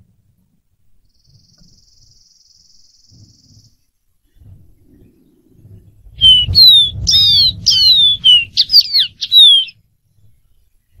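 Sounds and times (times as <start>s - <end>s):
bird whistling song: 6.1s - 9.8s.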